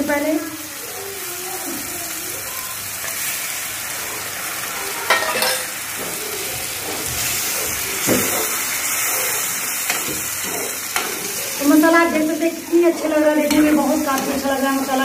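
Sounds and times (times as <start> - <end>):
paste sizzling in hot oil: 1.4 - 15.0
ladle stirring in pan: 5.1 - 15.0.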